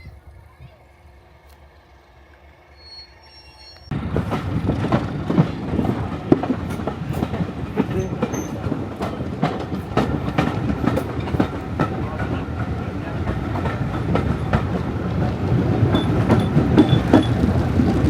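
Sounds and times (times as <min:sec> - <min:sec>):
train wheels clicking and rattling: 0:03.9 - 0:18.0.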